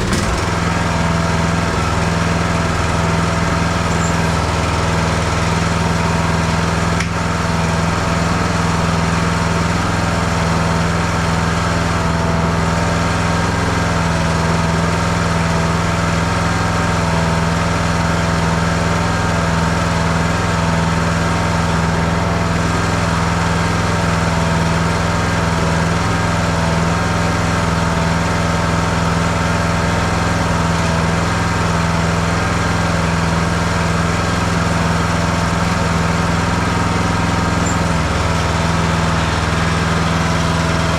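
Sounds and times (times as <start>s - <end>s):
mower engine running steadily: 0.0s - 40.9s.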